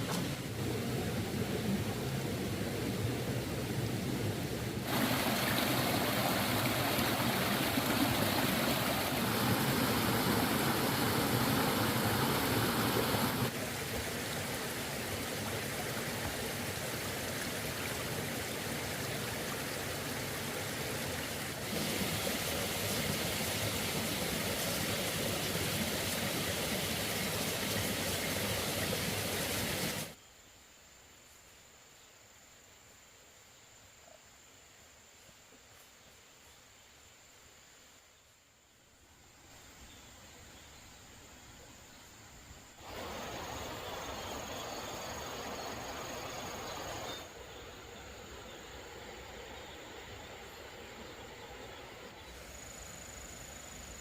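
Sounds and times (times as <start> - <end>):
steady rushing noise: 0.0 - 17.2.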